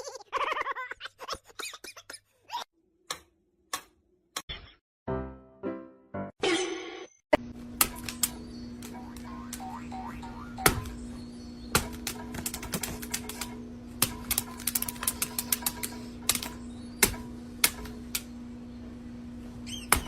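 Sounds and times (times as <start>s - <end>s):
steady low hum: 7.4s - 20.0s.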